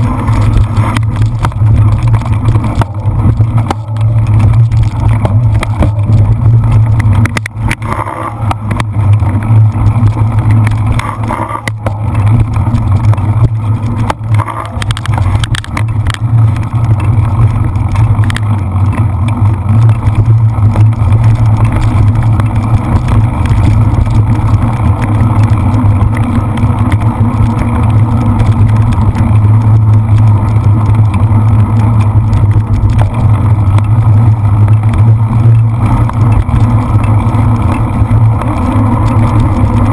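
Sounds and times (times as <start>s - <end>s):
heavy wind rumble on microphone: 0.0s - 39.9s.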